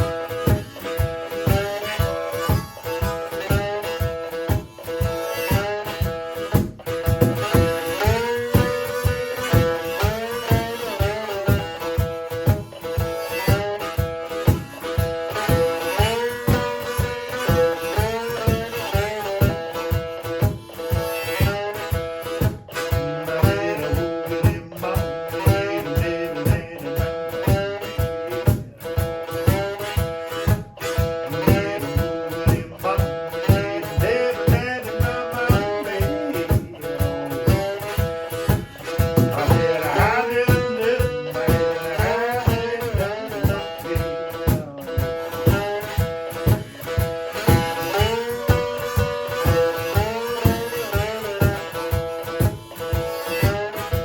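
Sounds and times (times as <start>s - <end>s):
cajon beat: 0.0s - 54.0s
sliding guitar notes: 0.0s - 54.0s.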